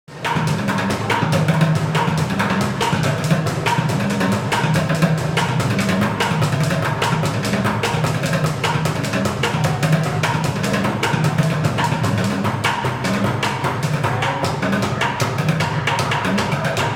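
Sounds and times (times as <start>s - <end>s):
plastic buckets drummed with sticks: 0.1s - 16.9s.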